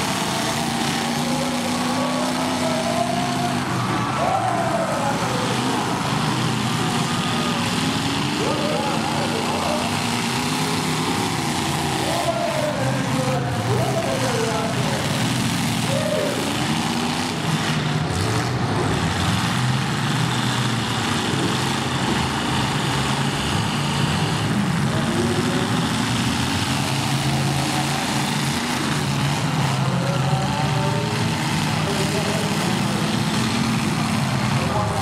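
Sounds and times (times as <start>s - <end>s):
car engines revving: 0.0s - 35.0s.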